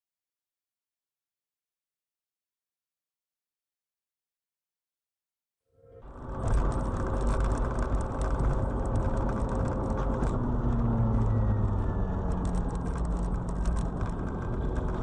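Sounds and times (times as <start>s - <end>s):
car engine and road rumble: 6.0s - 15.0s.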